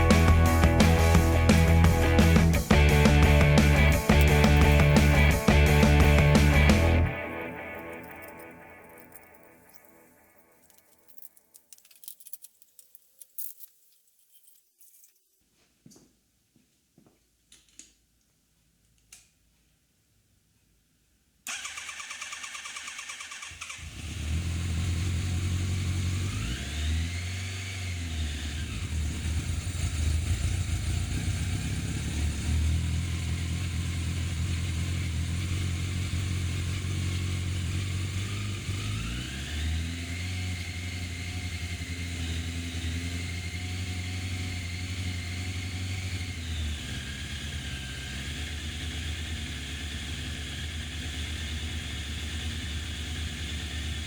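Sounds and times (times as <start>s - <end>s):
motorcycle engine revving: 0.0s - 9.8s, 21.5s - 54.0s.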